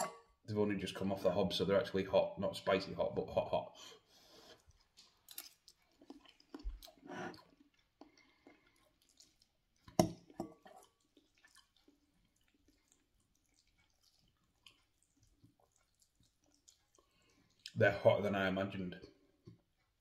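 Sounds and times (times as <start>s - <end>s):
fork clinking glass bowl: 0.0s - 0.2s
chewing noodles: 4.0s - 17.8s.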